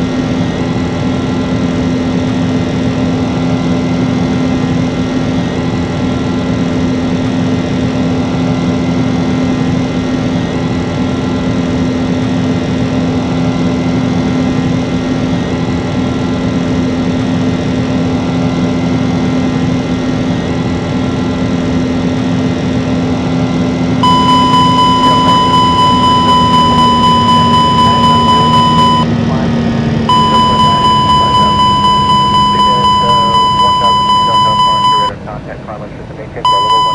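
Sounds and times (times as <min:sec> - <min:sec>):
airliner engines droning: 0:00.0 - 0:36.9
high electronic tone: 0:24.0 - 0:29.5, 0:30.1 - 0:35.2, 0:36.4 - 0:36.9.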